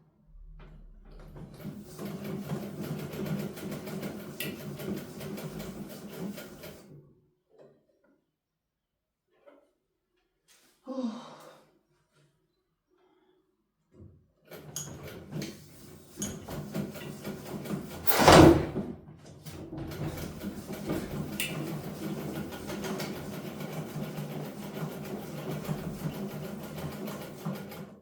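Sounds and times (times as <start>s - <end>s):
sewing machine stitching: 1.1s - 7.0s, 14.5s - 18.9s, 19.5s - 28.0s
loud thump: 18.1s - 18.9s.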